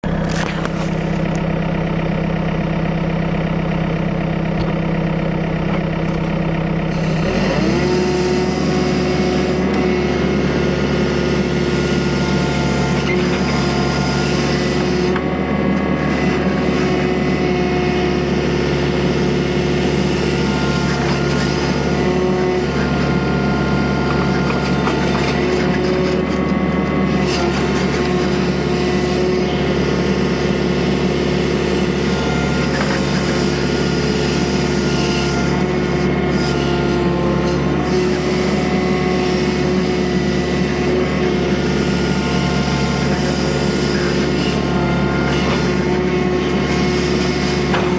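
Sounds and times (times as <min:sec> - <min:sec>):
excavator diesel engine revving: 0:00.0 - 0:47.9.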